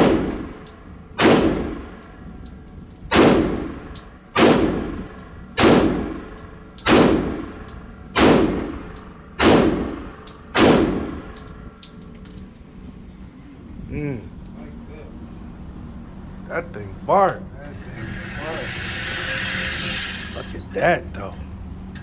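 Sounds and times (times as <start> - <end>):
pistol shots with long echo: 0.0 - 2.0, 3.1 - 11.4
faint metallic clinks: 11.3 - 12.6.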